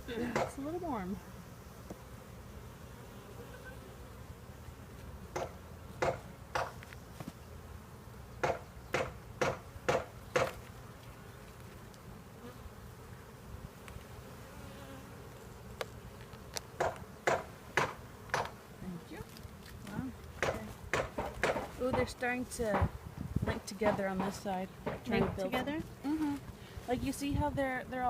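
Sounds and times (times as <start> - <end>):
honey bees buzzing: 0.0 - 28.0
short sharp knocks: 16.8 - 18.5, 20.4 - 22.1.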